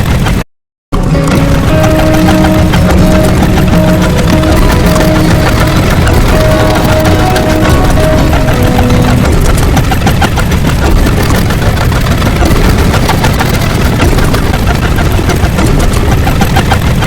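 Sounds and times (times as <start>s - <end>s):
deep steady rumble: 1.0s - 16.4s
dense crackling: 1.0s - 17.0s.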